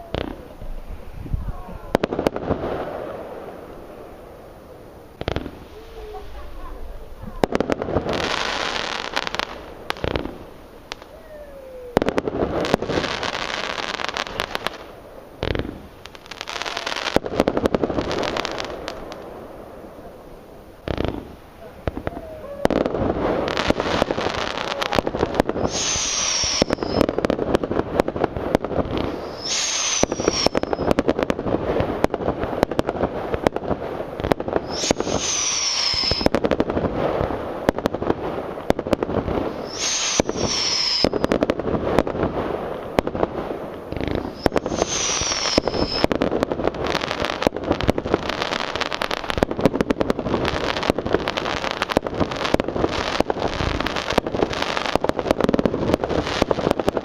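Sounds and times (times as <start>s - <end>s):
fireworks bangs and crackling: 0.0s - 57.0s
high falling whistle: 25.6s - 27.1s, 29.2s - 30.9s, 34.7s - 36.3s, 39.5s - 41.3s, 44.2s - 46.1s.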